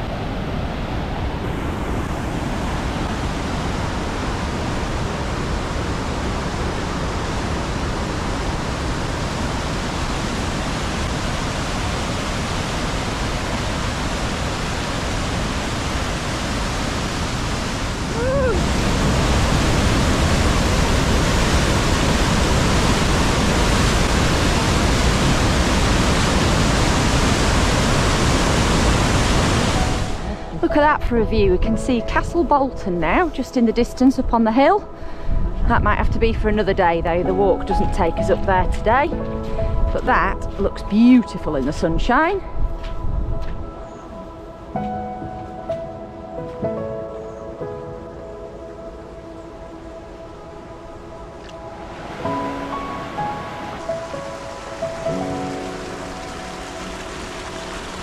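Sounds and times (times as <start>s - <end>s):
river rushing over falls: 0.0s - 30.9s, 48.9s - 58.0s.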